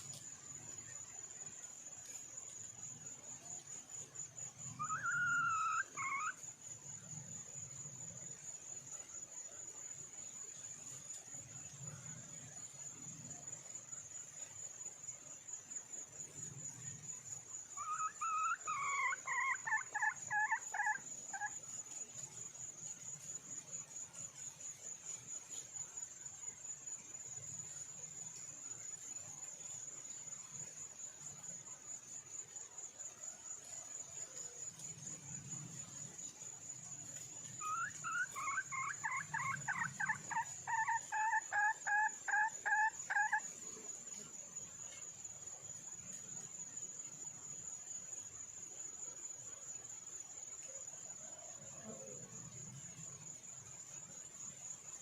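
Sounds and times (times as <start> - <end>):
cricket trilling: 0.0 - 55.0
hen cackling: 4.8 - 6.4, 17.8 - 21.5, 37.6 - 43.4.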